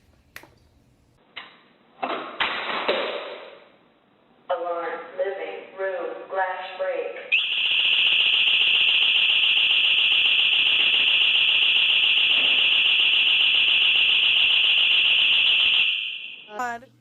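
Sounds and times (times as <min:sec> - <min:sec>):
alarm siren high-pitched tone: 0:07.3 - 0:16.8.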